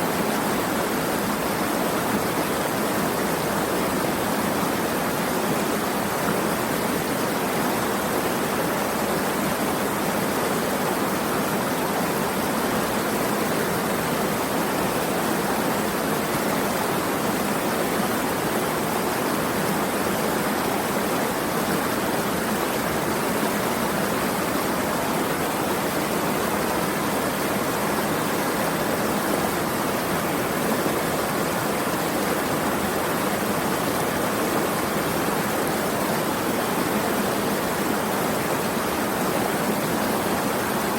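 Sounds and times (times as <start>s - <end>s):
rushing of flowing water: 0.0s - 40.9s.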